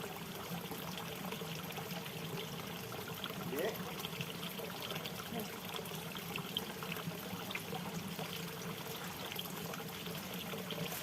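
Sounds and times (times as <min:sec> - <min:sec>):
water drips and splashes: 0:00.0 - 0:11.0
water trickling and pouring: 0:00.0 - 0:11.0.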